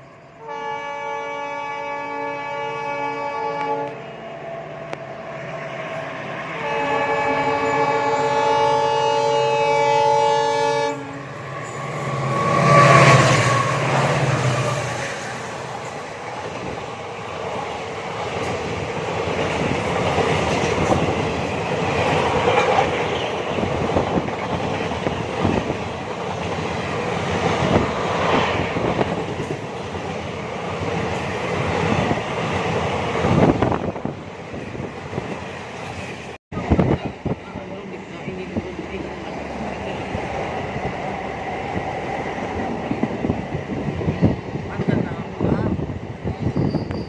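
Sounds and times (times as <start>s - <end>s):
train rumbling on rails: 0.0s - 47.0s
train horn: 0.4s - 4.5s, 6.6s - 15.2s.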